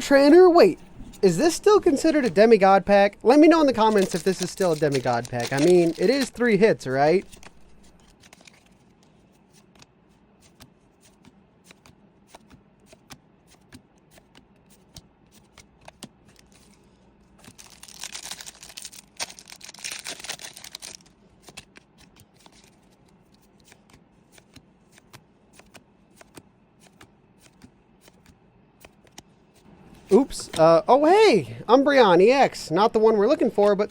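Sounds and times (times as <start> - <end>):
crinkling wrapper rustle: 3.6 - 9.7, 16.3 - 23.8
cards clicking and flicking: 3.7 - 16.8, 17.4 - 29.3.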